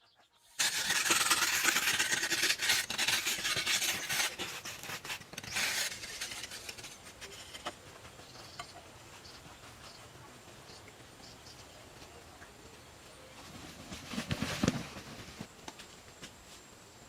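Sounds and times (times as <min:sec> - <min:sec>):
rasping scraping noise: 0:00.6 - 0:10.1.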